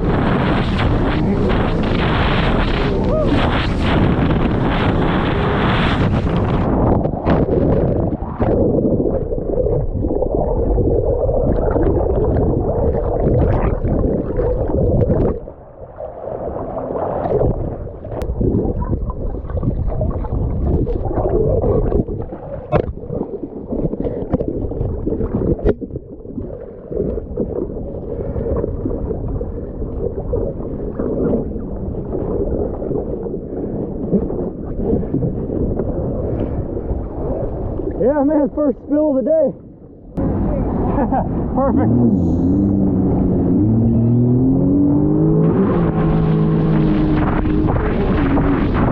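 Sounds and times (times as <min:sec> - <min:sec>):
jet ski running: 0:00.0 - 0:06.7, 0:40.2 - 0:48.9
wind rushing: 0:00.0 - 0:15.5, 0:39.5 - 0:48.9
water rushing: 0:00.0 - 0:28.3, 0:36.2 - 0:48.9
water sloshing and gurgling: 0:00.0 - 0:48.9.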